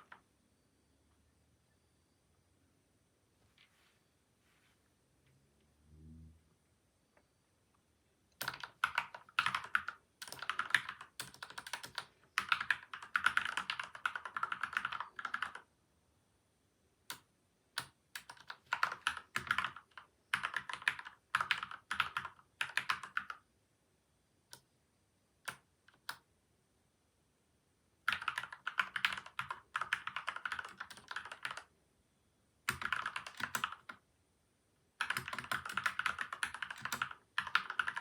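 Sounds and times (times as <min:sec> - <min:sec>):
mechanical keyboard typing: 0:08.4 - 0:15.7, 0:17.1 - 0:23.4, 0:28.1 - 0:31.7, 0:32.7 - 0:34.0, 0:35.0 - 0:38.0.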